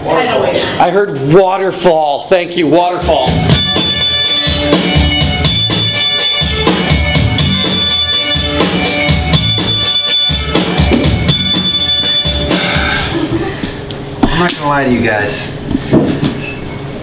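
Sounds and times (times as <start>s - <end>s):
drum kit steady beat: 2.9s - 14.4s
live band playing: 3.0s - 12.7s.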